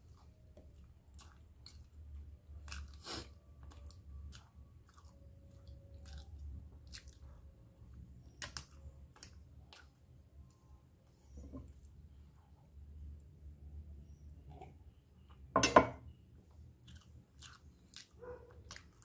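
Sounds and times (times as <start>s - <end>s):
person chewing food: 0.0s - 12.1s, 16.4s - 19.0s.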